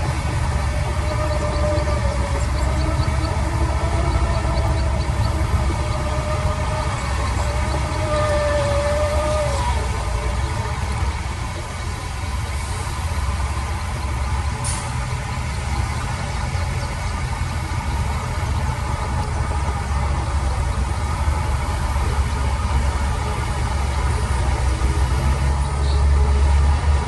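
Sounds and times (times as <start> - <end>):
heavy diesel engine rumbling: 0.0 - 27.0.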